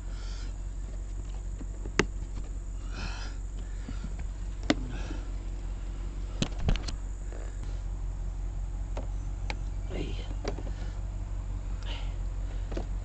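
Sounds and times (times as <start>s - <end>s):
steady low hum: 0.0s - 13.0s
sharp clicks and knocks: 0.9s - 2.5s.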